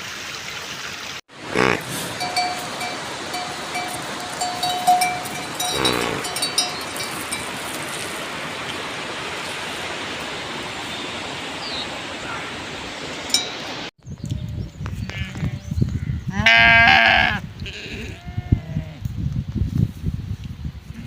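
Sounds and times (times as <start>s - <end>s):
rain hissing: 1.3s - 13.9s
animal bleating: 1.5s - 2.4s, 5.5s - 6.5s, 16.3s - 19.0s
livestock bell clinking: 1.9s - 8.0s, 13.3s - 13.6s.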